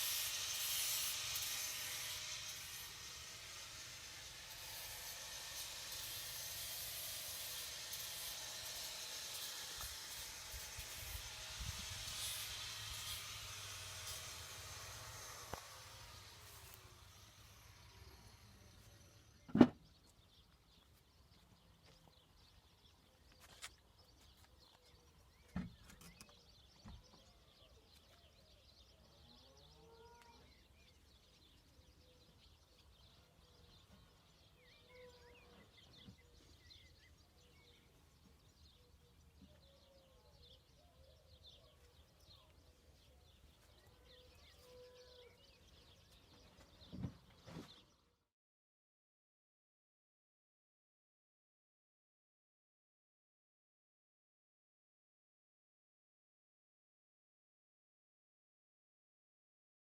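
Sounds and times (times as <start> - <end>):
steady high hiss: 0.0 - 19.4
birds chirping: 15.4 - 48.2.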